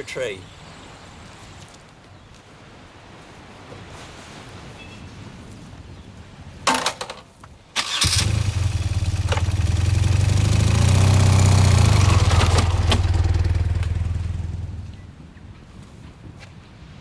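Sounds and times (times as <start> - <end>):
motorcycle starter cranking: 7.8 - 14.8
motorcycle engine idling: 8.0 - 15.0.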